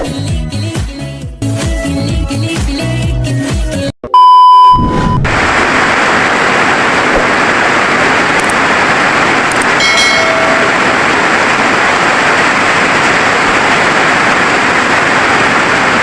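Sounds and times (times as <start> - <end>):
loud steady beep: 4.1 - 5.3, 9.8 - 11.0
steady rain: 5.3 - 16.0.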